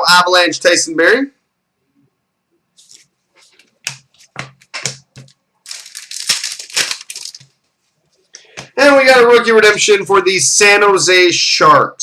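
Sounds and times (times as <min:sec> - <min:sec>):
crinkling rustle: 0:02.8 - 0:08.3
cards tapping on table: 0:03.8 - 0:05.4.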